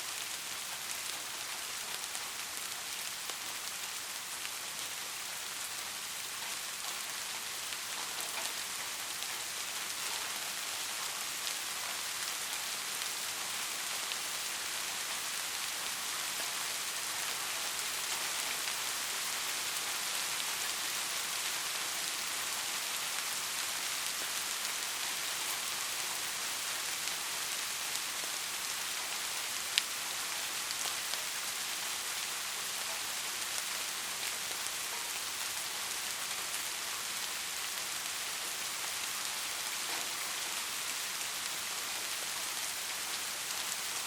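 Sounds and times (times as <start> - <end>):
steady rain hiss: 0.0 - 44.0.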